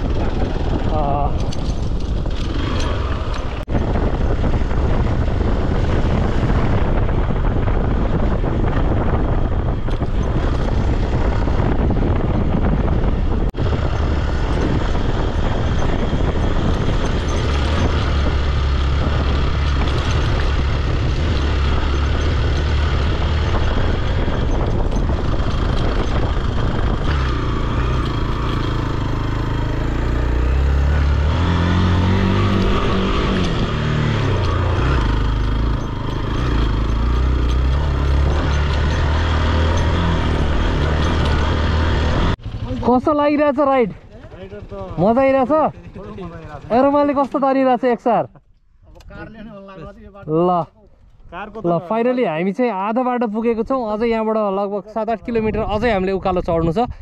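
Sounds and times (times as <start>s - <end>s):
motorcycle engine under load: 0.0s - 47.7s
wind and road noise: 0.0s - 57.0s.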